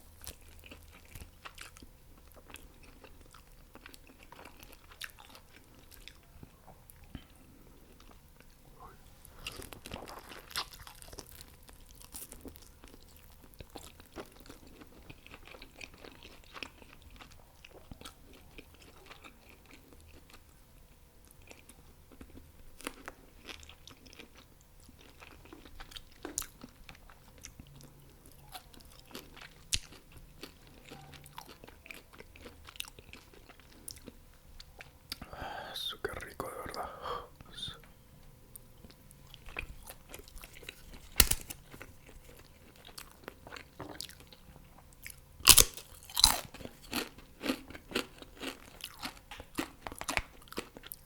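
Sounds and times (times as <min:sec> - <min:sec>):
crunching food: 0:00.2 - 0:08.2, 0:09.4 - 0:20.5, 0:21.2 - 0:35.4, 0:38.8 - 0:51.0
wet chewing: 0:45.0 - 0:51.0.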